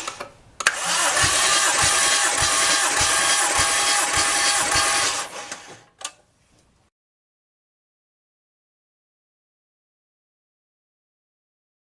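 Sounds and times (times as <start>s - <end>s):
starter motor cranking engine: 0.0s - 6.0s.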